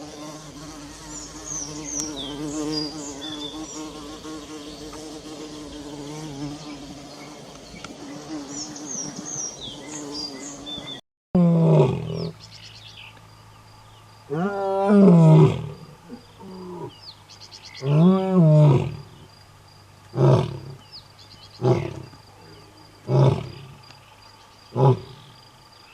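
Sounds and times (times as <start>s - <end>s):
insects buzzing: 0.0s - 25.9s
large animal calls: 21.6s - 23.8s.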